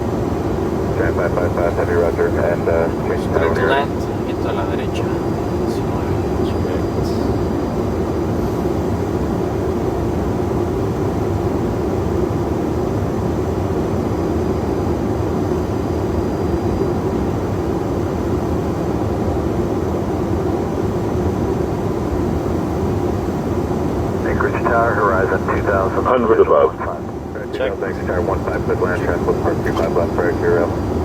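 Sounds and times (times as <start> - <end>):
airflow rushing in cockpit: 0.0 - 13.5, 21.6 - 31.0.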